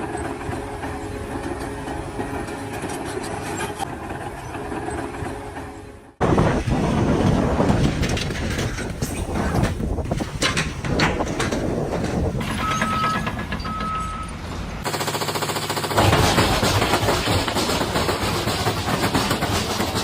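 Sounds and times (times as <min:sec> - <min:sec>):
machinery humming: 0:00.0 - 0:14.8
rough clattering with knocks: 0:07.2 - 0:14.7, 0:16.0 - 0:20.0.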